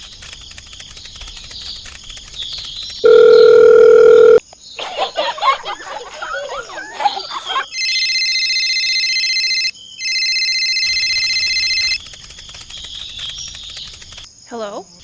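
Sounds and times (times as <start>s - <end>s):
telephone ringing: 3.0s - 4.4s, 6.4s - 12.0s
crickets chirping: 4.5s - 12.0s.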